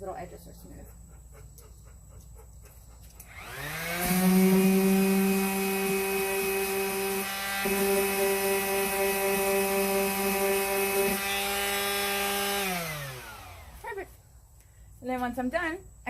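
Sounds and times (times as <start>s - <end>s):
orbital sander sanding: 3.3s - 13.8s.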